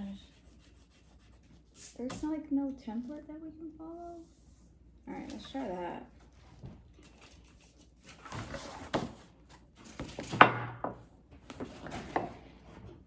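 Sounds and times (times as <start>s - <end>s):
paper rustling: 6.2s - 10.3s.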